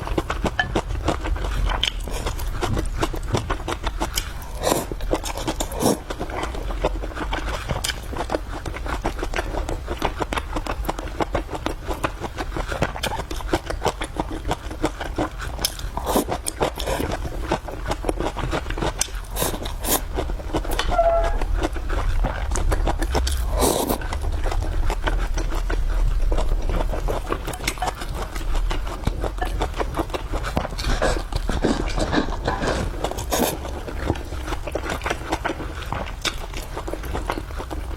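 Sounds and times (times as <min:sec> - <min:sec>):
chewing and eating sounds: 0:00.0 - 0:37.9.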